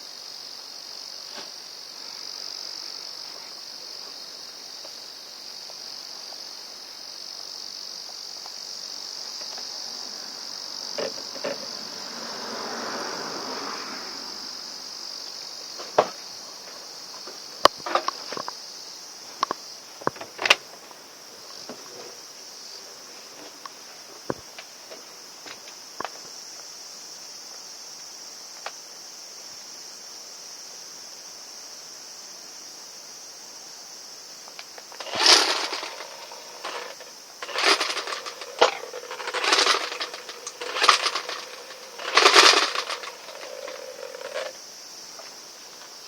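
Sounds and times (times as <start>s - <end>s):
clicks and knocks of metal parts: 34.9s - 44.6s
soft rustle: 34.9s - 44.6s.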